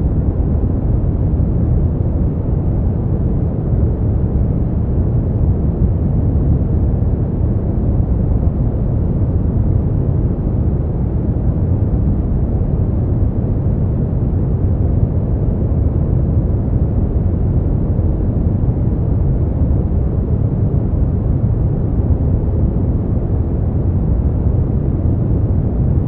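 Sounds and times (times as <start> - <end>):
deep white noise rumble: 0.0 - 26.0.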